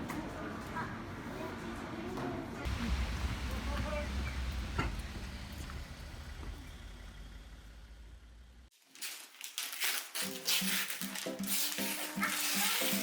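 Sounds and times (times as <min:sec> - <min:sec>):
low rumble: 0:02.7 - 0:08.7
soft background music: 0:10.1 - 0:13.0.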